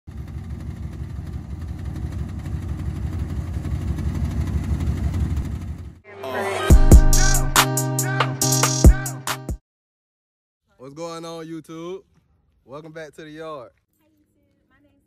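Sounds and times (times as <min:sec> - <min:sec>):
car engine idling: 0:00.1 - 0:06.0
intro music with deep bass hit: 0:06.6 - 0:09.5.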